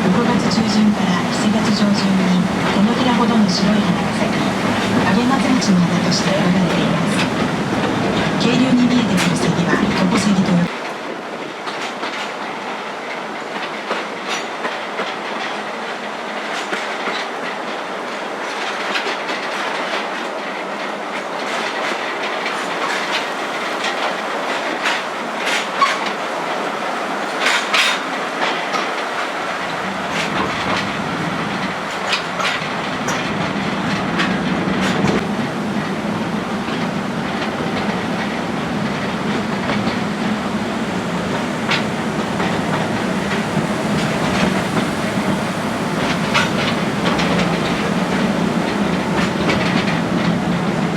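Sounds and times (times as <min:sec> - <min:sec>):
train wheels rumbling on rail: 0:00.0 - 0:50.9
clicks over rail joints: 0:27.3 - 0:35.2.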